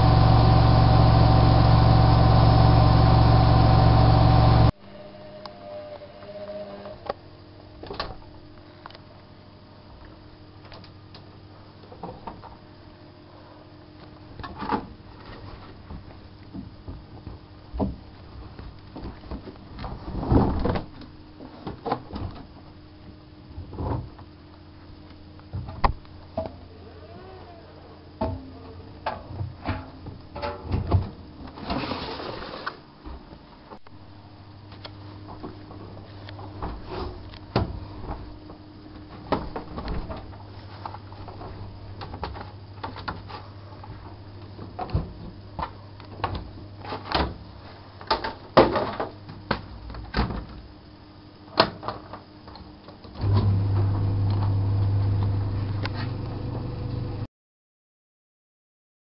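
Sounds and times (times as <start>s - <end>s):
washing machine motor tone: 0.0s - 7.1s, 53.1s - 57.3s
low machine hum: 0.0s - 48.0s, 52.4s - 57.3s.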